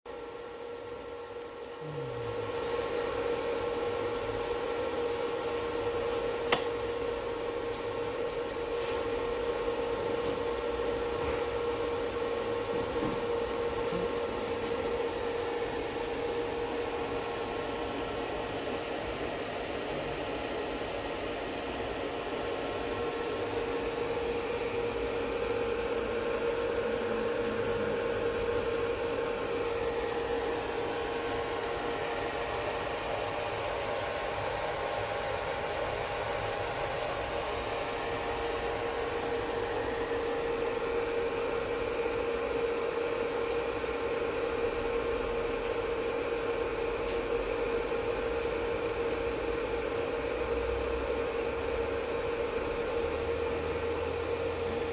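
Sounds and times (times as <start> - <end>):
electrical whine and hum: 0.1 - 54.9
sharp click: 6.5 - 6.7.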